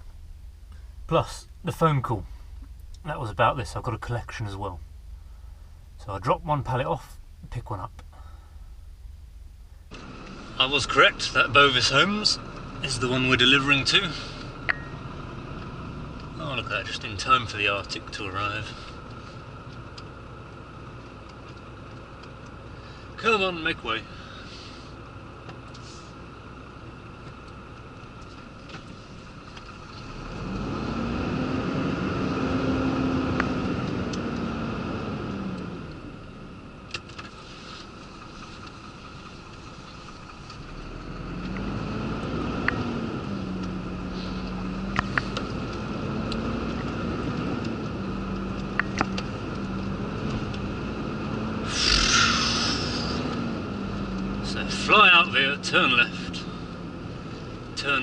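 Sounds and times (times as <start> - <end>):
diesel lorry engine: 0.0 - 58.0
short hiss: 51.7 - 53.2.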